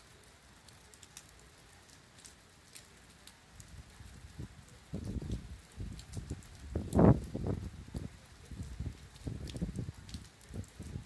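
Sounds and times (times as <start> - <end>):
rain spattering: 0.0 - 11.0
wind gusting against microphone: 3.6 - 11.0.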